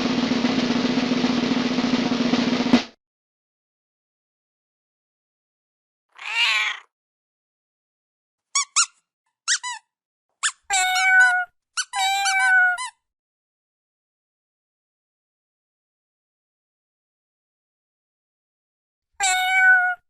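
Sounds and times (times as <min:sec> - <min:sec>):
cat meowing: 0:06.1 - 0:06.9, 0:10.7 - 0:12.9, 0:19.2 - 0:20.0.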